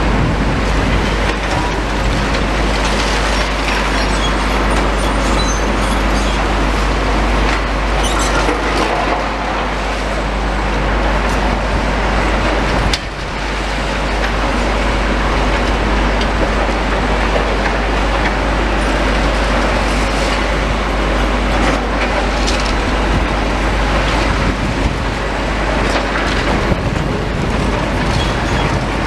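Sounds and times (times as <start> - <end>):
demolition machinery rumbling: 0.0 - 29.0
high metallic squeaks: 3.3 - 6.5, 8.0 - 8.5.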